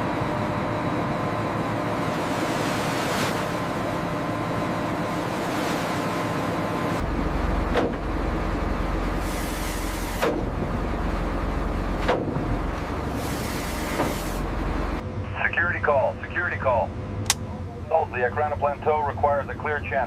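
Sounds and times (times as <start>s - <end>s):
boat engine drone: 0.0s - 20.0s
water slapping against hull: 2.0s - 7.0s, 9.0s - 10.7s.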